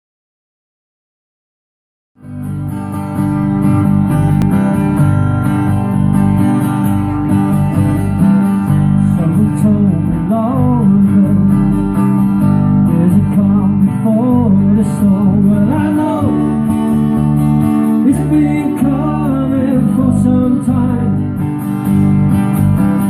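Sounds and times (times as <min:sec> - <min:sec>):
strummed acoustic guitar: 0:02.2 - 0:23.0.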